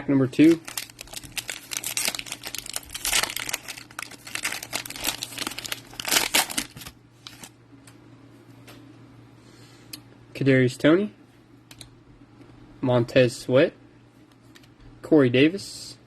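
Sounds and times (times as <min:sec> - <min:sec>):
wrapper tearing and crinkling: 0:00.4 - 0:07.5.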